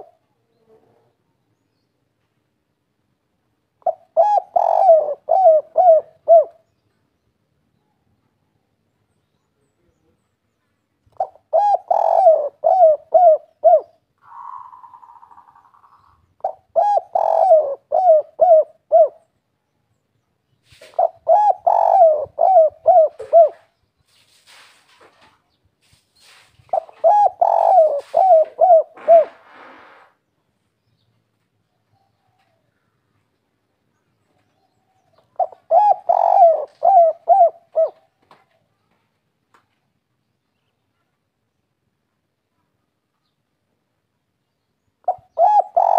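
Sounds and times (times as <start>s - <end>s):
dove cooing: 0.0s - 1.1s, 3.8s - 6.7s, 11.1s - 19.3s, 20.8s - 23.7s, 26.7s - 30.0s, 34.5s - 38.2s, 45.0s - 45.9s.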